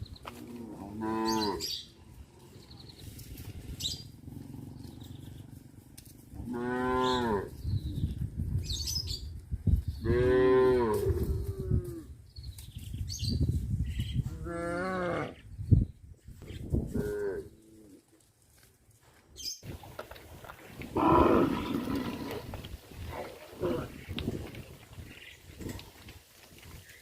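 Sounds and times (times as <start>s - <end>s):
cows mooing: 0.4s - 1.8s, 6.4s - 7.6s, 10.0s - 12.0s, 20.9s - 24.0s.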